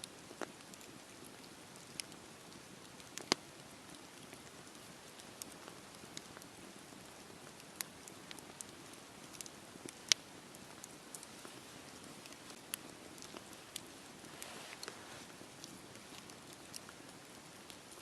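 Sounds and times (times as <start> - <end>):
fire crackles and pops: 0.0 - 18.0
hiss of fire flames: 13.2 - 15.6.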